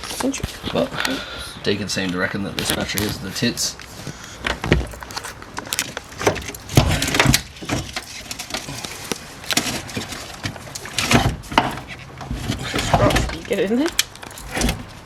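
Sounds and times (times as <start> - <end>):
hardware knocking and rattling: 4.4 - 15.0.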